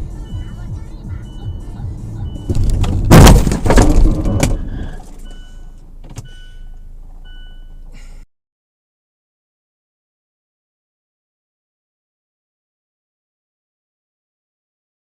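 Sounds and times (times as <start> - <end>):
road rumble: 0.0 - 8.3
electronic beeps: 0.2 - 2.7, 4.1 - 7.8
car crash: 2.5 - 5.1.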